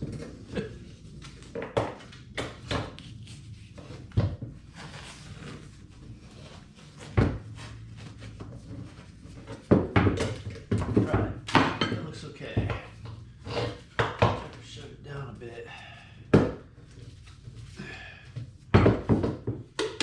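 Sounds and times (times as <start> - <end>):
knocks of muffler parts handled: 18.7 - 20.0.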